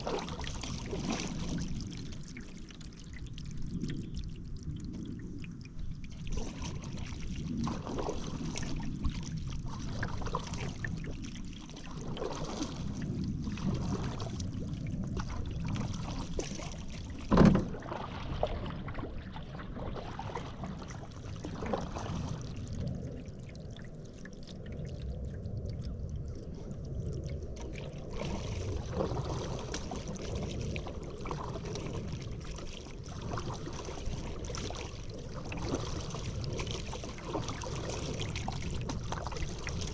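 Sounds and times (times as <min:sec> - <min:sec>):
paddle strokes splashing in water: 0:00.0 - 0:02.8, 0:06.1 - 0:22.8, 0:27.5 - 0:39.9.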